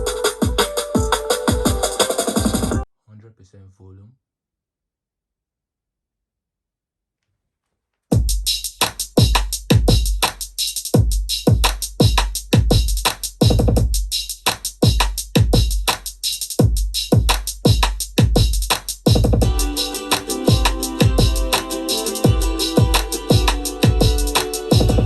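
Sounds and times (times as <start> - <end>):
electronic music with heavy bass: 0.0 - 2.8, 19.1 - 25.0.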